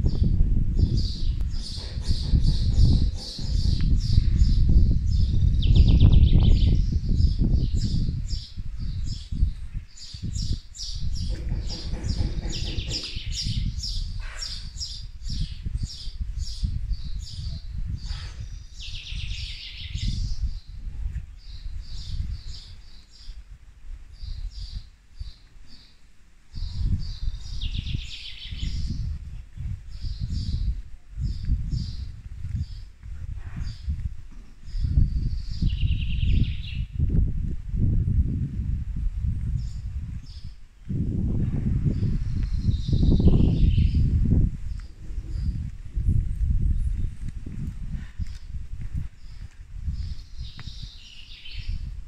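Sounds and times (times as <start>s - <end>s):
heavy low rumble: 0.0s - 9.6s, 10.2s - 15.9s
wind rumbling on microphone: 0.0s - 52.0s
small birds chirping: 0.1s - 23.4s, 42.0s - 51.9s.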